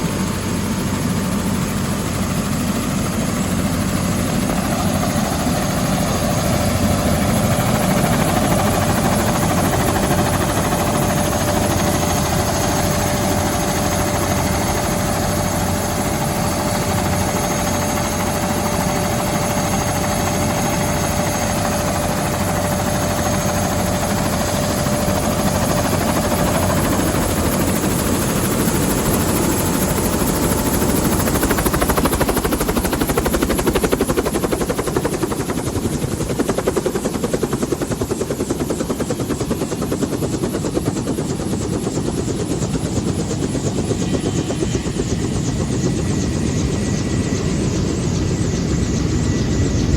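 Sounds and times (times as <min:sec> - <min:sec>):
helicopter rotor noise: 0:00.0 - 0:49.9
turbine whine: 0:42.0 - 0:49.9.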